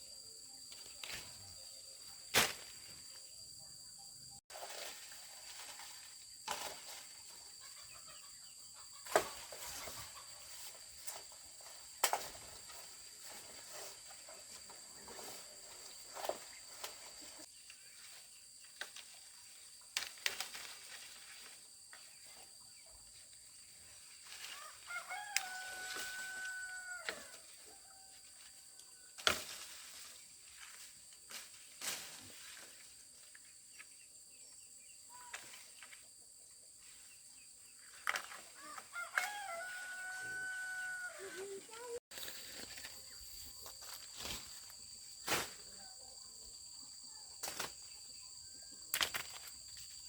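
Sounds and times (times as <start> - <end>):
rooster crowing: 24.6 - 28.3, 38.6 - 41.7.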